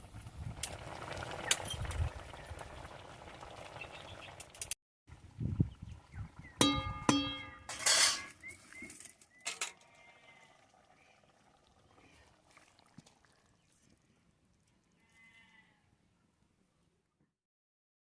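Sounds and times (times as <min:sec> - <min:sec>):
goat bleating: 0:09.7 - 0:10.7, 0:15.0 - 0:15.9.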